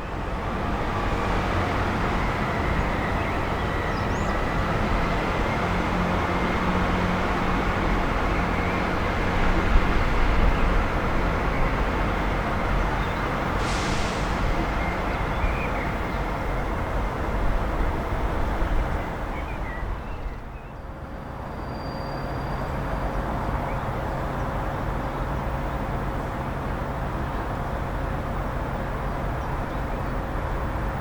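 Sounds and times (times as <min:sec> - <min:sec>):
diesel train rumbling: 0:00.0 - 0:31.0
short hiss: 0:13.6 - 0:14.4.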